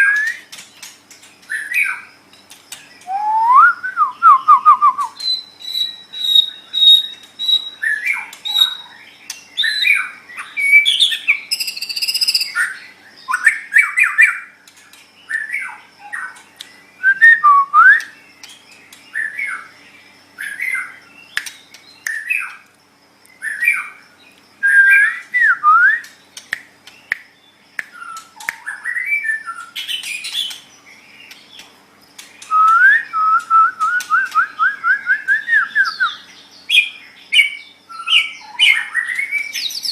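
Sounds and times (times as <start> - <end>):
bird singing whistles and trills: 0.0 - 14.6, 15.2 - 22.6, 23.3 - 31.7, 32.4 - 39.9.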